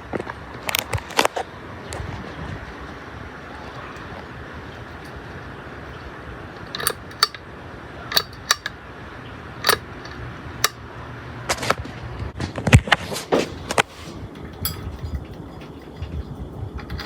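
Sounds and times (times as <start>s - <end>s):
ceiling fan whooshing and humming: 0.0s - 17.0s
sharp irregular clicks: 6.6s - 7.4s, 8.1s - 8.8s, 9.6s - 10.8s.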